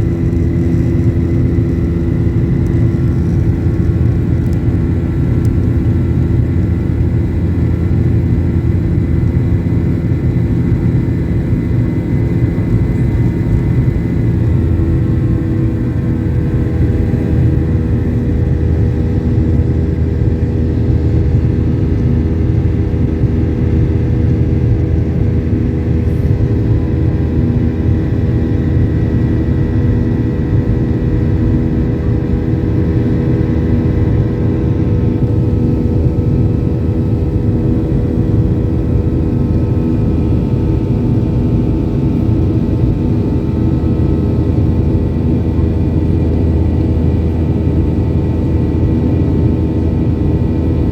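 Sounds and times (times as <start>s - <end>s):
aircraft cabin engine rumble: 0.0s - 50.9s.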